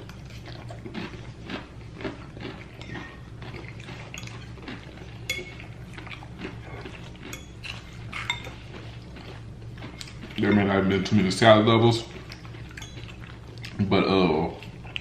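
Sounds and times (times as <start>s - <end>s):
cutlery scraping against a plate: 2.8s - 8.8s, 12.6s - 13.3s.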